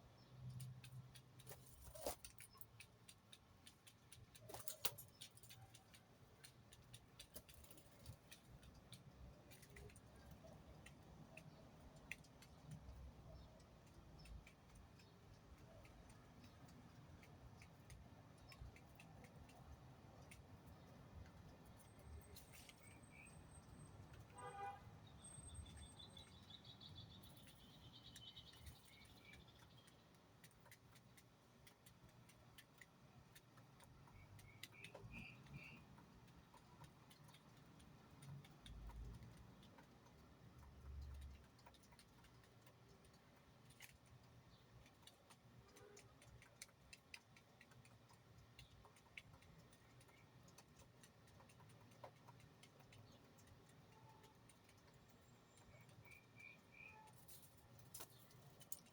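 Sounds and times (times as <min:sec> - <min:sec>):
soft ticks: 0:00.0 - 0:24.4, 0:26.2 - 0:58.9
faint bird chirps: 0:21.8 - 0:30.0, 0:34.1 - 0:36.0, 0:55.2 - 0:57.4.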